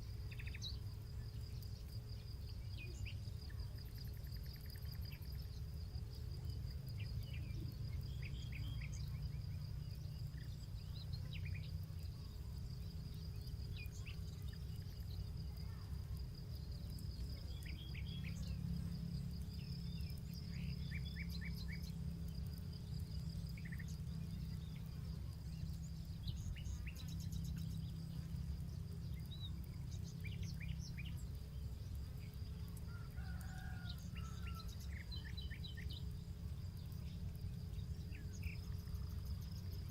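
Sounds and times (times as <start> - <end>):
high insect drone: 0.0 - 39.9
small birds chirping: 0.0 - 39.9
rooster crowing: 32.9 - 34.8.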